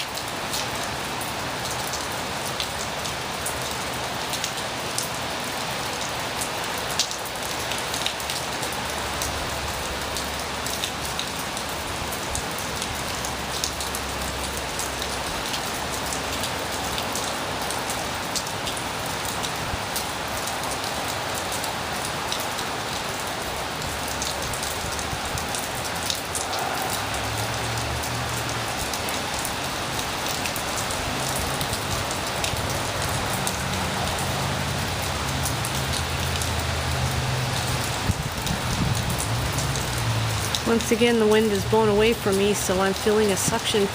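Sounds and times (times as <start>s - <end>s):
heavy rain falling: 0.0s - 43.9s
strong wind gusts: 24.8s - 28.9s, 38.0s - 39.3s.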